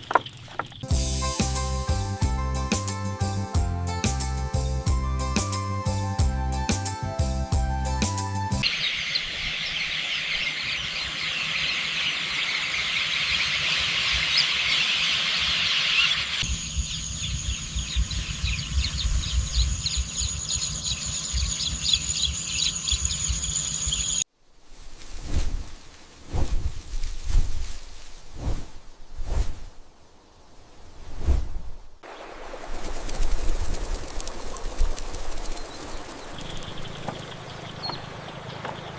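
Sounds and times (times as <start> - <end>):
small birds chirping: 0.0 - 1.0, 8.6 - 24.3, 32.1 - 38.9.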